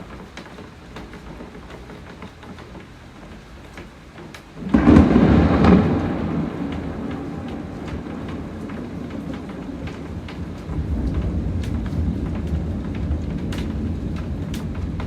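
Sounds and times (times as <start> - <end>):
steady rain: 0.0 - 15.0
thunderclap rumbling: 4.6 - 15.0.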